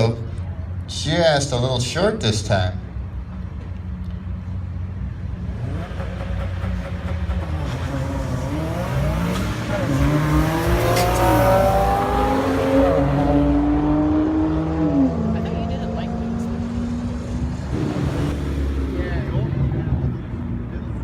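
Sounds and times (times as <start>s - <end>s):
race cars accelerating hard: 5.2s - 21.0s.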